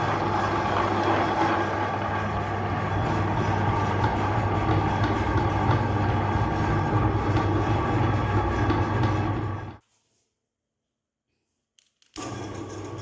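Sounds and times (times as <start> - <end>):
electric meat grinder running: 0.0 - 9.8.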